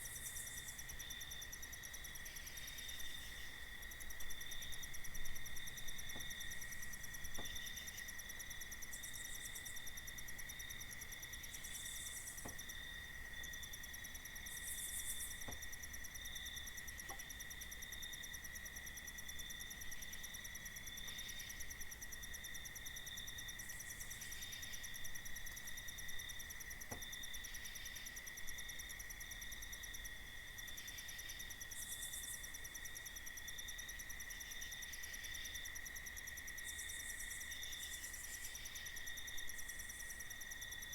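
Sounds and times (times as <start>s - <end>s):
crickets trilling: 0.0s - 40.9s
faint ticks: 15.2s - 15.9s, 17.0s - 17.4s.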